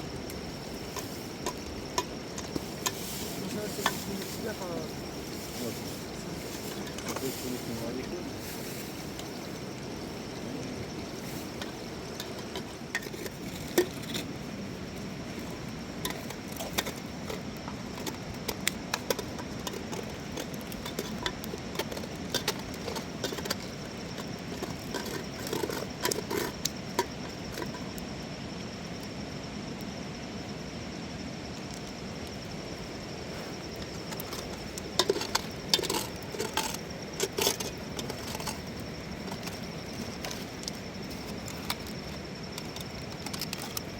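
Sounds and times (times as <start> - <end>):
background hiss: 0.0 - 43.9
small hard objects clinking: 0.1 - 28.0, 33.4 - 43.9.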